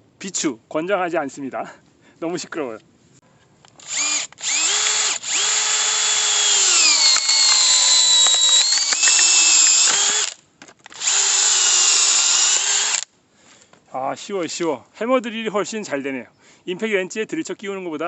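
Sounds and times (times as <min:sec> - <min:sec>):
drill motor whining: 0:03.8 - 0:13.0.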